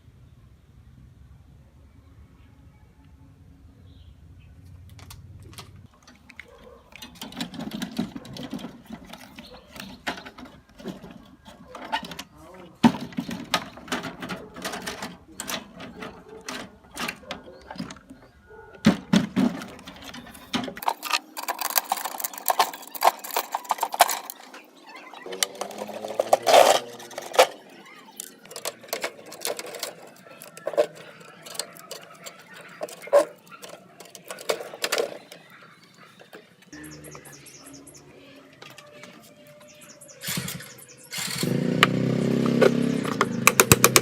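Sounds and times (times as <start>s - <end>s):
sharp clicks and knocks: 4.8s - 35.5s, 40.3s - 44.0s.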